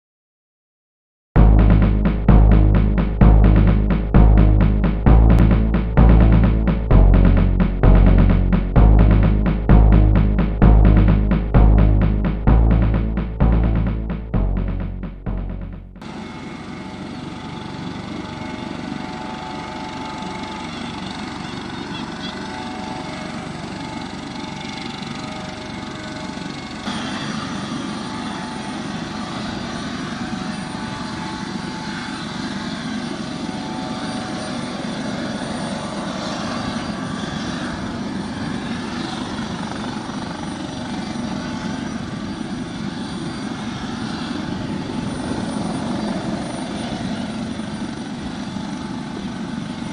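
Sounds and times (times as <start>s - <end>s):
helicopter turbine whine: 1.4s - 15.3s, 15.9s - 49.9s
rushing rotor noise: 1.4s - 32.1s.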